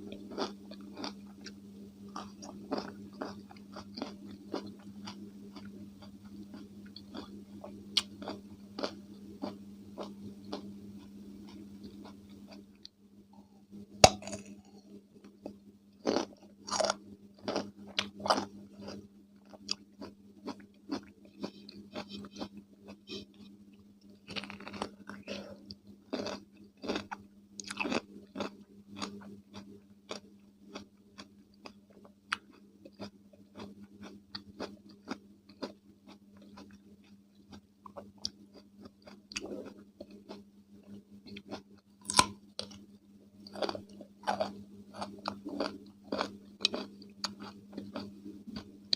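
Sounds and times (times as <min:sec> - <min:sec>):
chewing crunchy cucumber: 0:00.0 - 0:12.9, 0:14.0 - 0:23.3, 0:24.2 - 0:42.8, 0:43.4 - 0:48.9
faint steady hum: 0:00.0 - 0:48.9.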